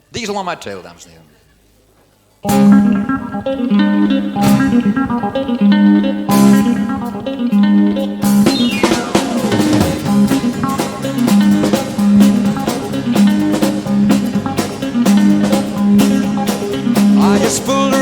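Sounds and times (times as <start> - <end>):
live country band playing: 2.4 - 18.0
pedal steel guitar: 2.4 - 18.0
drum kit steady beat: 2.5 - 3.7, 4.3 - 5.6, 6.3 - 7.3, 8.2 - 18.0.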